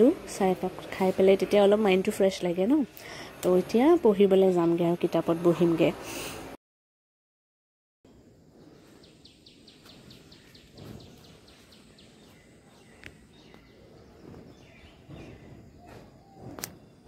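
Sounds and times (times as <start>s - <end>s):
bird chirping: 8.5s - 17.0s.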